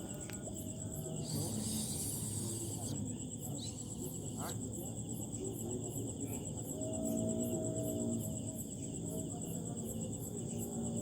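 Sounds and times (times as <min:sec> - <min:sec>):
insect chorus pulsing: 0:00.0 - 0:11.0
repeating insect chirp: 0:00.1 - 0:04.4.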